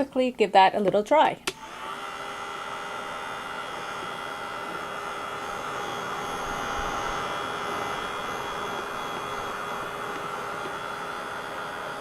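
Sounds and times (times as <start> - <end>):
hot-air dryer fan whine: 1.4 - 12.0.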